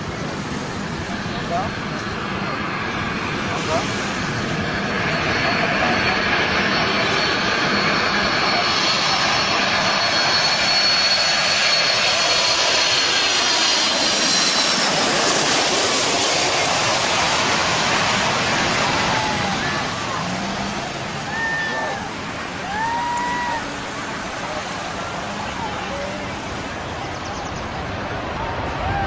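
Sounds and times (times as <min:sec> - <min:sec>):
jet engines running loud: 0:00.0 - 0:29.0.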